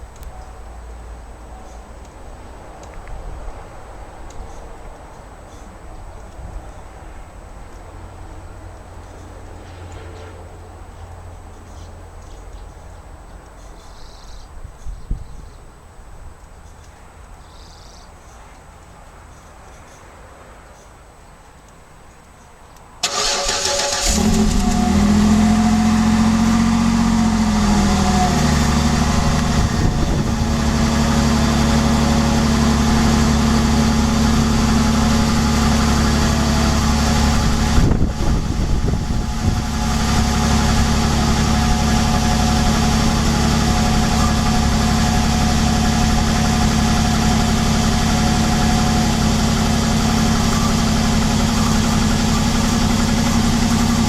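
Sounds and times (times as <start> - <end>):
engine idling: 23.0 - 54.0
engine starter cranking: 23.0 - 54.0.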